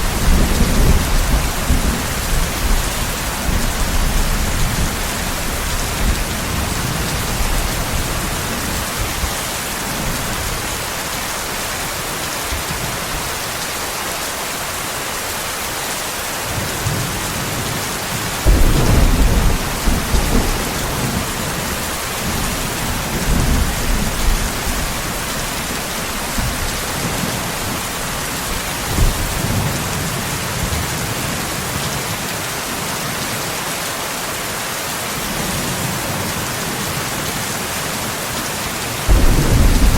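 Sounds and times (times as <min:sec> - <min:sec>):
thunder rumbling: 0:00.0 - 0:10.6, 0:18.4 - 0:30.2, 0:39.1 - 0:39.9
rain falling: 0:00.0 - 0:39.9.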